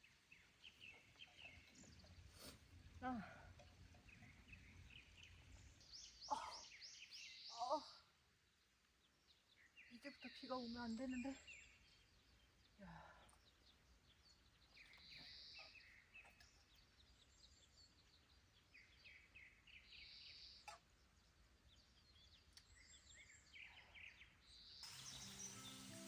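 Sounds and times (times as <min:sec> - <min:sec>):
small birds chirping: 0:00.0 - 0:26.0
steady hiss: 0:24.8 - 0:26.0.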